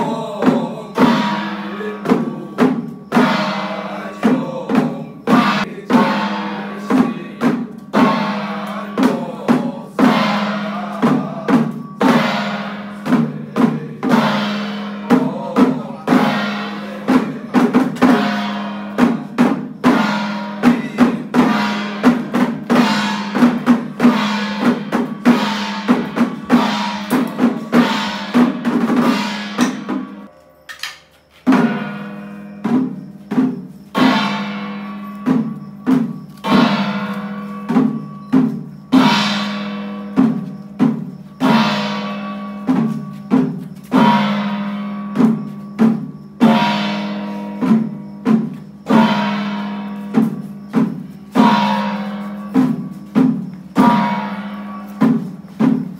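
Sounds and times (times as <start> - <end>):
drums and gongs in steady rhythm: 0.0 - 55.9.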